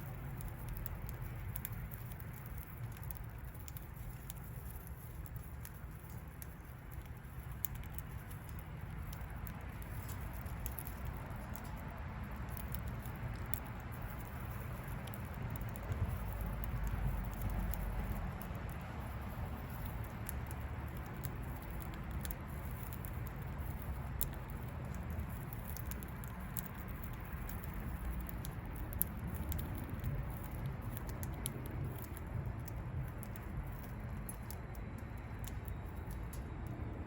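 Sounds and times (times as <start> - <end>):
budgie beak clicking at food: 0.0 - 36.8.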